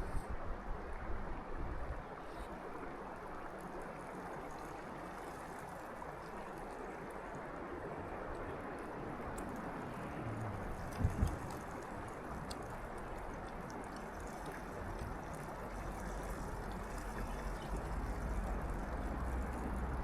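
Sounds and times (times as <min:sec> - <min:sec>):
water rushing from waterfall: 0:02.6 - 0:20.0
wind buffeting on microphone: 0:06.5 - 0:20.0.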